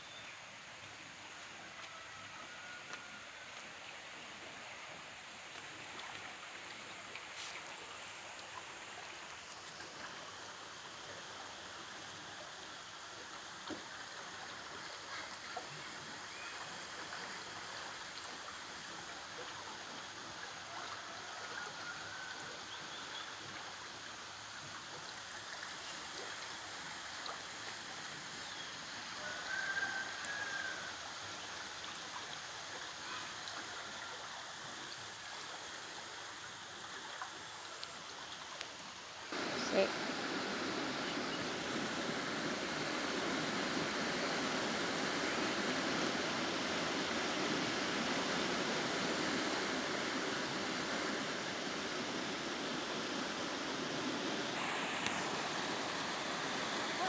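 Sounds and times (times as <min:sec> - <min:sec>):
water rushing over rocks: 0:39.3 - 0:57.0.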